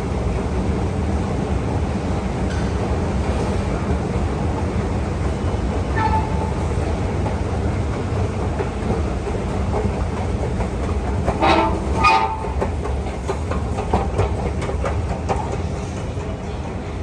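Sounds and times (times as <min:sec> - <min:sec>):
escalator rumble: 0:00.0 - 0:16.0
escalator steps clicking: 0:03.7 - 0:16.3.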